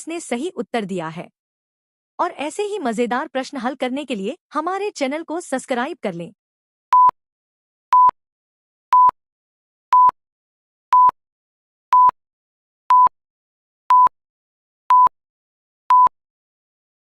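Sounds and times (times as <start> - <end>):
timer beeping: 6.9 - 7.1, 7.9 - 8.2, 8.9 - 9.2, 9.9 - 10.2, 10.9 - 11.2, 11.9 - 12.2, 12.9 - 13.1, 13.9 - 14.1, 14.9 - 15.1, 15.9 - 16.1.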